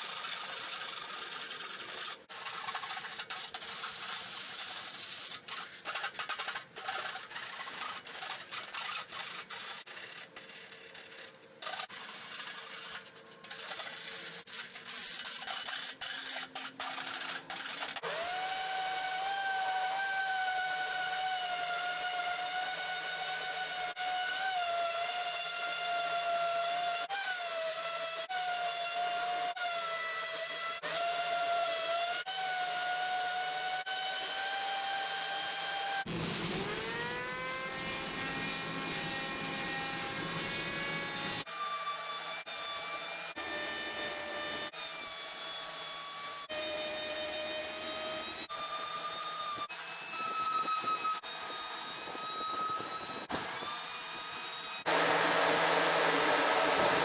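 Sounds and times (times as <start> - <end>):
file rasping on filler: 0.0 - 18.0
power tool whining: 18.0 - 24.4, 36.0 - 41.5, 49.5 - 57.0.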